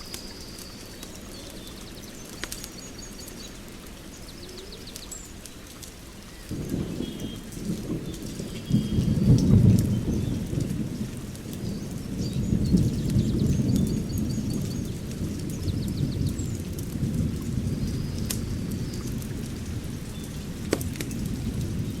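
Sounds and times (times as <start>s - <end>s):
steady rain: 0.0s - 22.0s
thunder rumbling: 6.5s - 22.0s.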